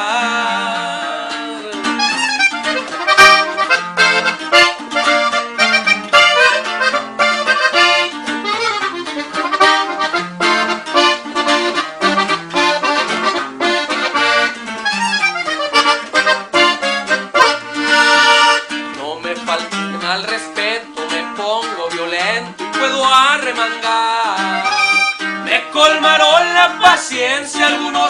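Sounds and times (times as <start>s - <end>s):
bass line: 0.0s - 21.3s
plucked strings: 0.0s - 28.0s
accordion playing fast: 1.7s - 20.3s, 24.3s - 28.0s.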